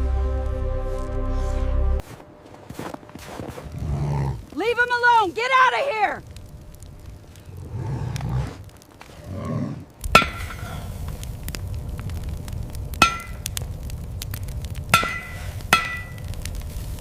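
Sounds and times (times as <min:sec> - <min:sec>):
steady low rumble: 0:06.2 - 0:09.0, 0:09.8 - 0:17.0
sharp metallic strikes ringing: 0:13.0 - 0:13.4, 0:15.0 - 0:16.2.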